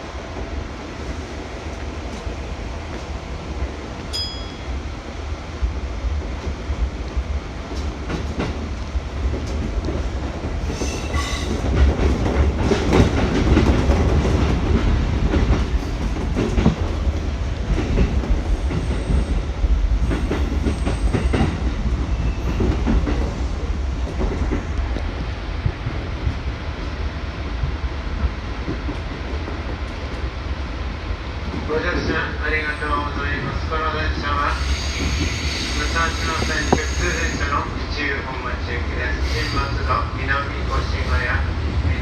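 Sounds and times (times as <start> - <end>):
train rumble: 0.0 - 42.0.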